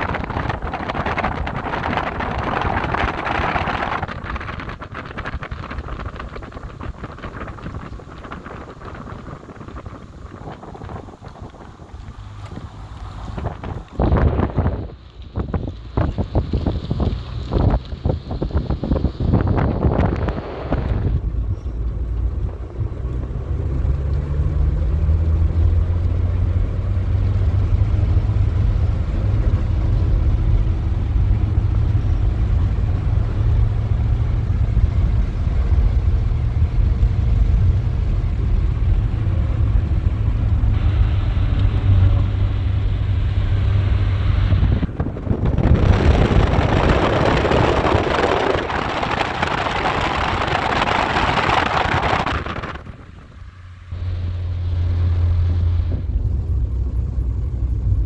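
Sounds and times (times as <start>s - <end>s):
vehicle engine droning: 0.0s - 58.0s
loud even rushing noise: 27.3s - 58.0s.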